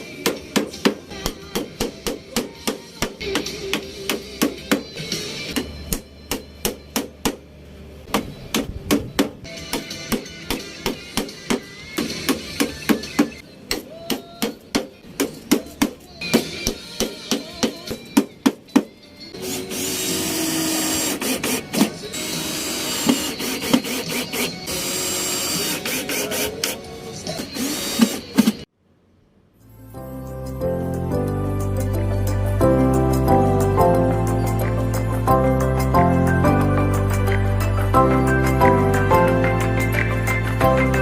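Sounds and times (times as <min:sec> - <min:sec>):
background music: 0:00.0 - 0:28.7, 0:29.6 - 0:41.0
power tool running: 0:19.4 - 0:26.8, 0:27.4 - 0:28.6.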